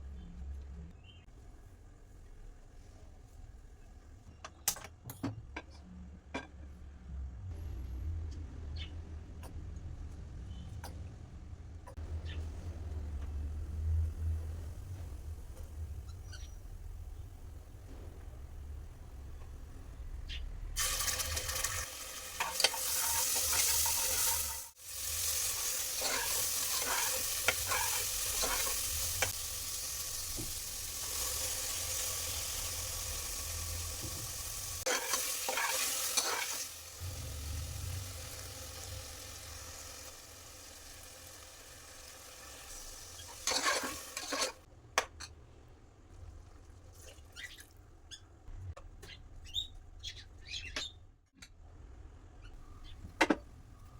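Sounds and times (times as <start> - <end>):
utensil scraping a pan: 20.8 - 24.6, 25.6 - 29.4, 34.8 - 36.7, 43.2 - 44.7
food sizzling in a pan: 20.8 - 44.7.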